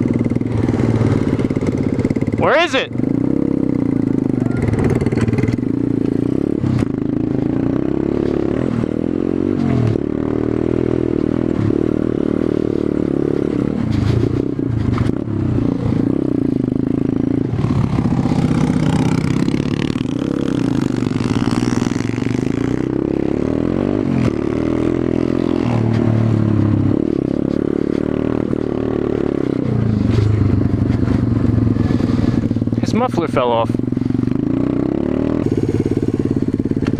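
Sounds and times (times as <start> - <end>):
pit bike engine idling: 0.0 - 7.8, 30.0 - 36.9.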